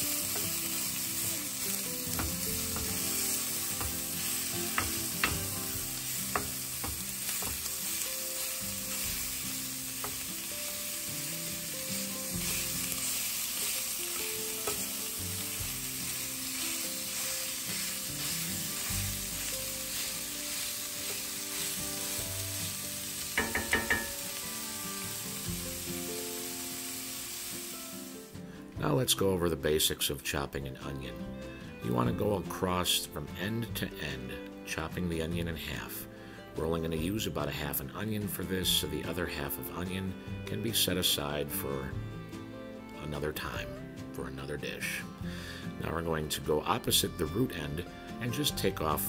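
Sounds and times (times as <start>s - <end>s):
meat sizzling in a skillet: 0.0s - 28.4s.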